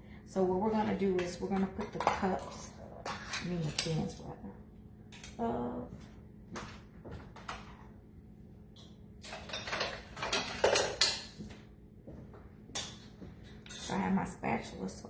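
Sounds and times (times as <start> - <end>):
cans and utensils clattering: 9.2 - 11.3.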